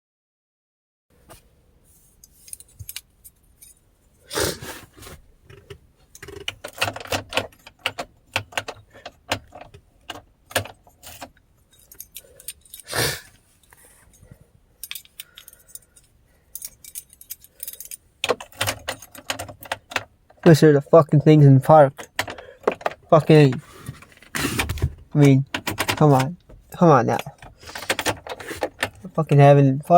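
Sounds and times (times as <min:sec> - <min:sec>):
keys jangling: 0:11.0 - 0:12.9, 0:13.6 - 0:19.5.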